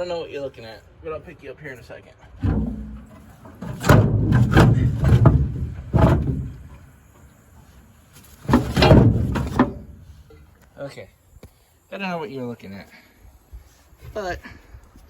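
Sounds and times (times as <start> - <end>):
microphone handling bumps and rubbing: 2.4 - 6.9, 7.6 - 10.3.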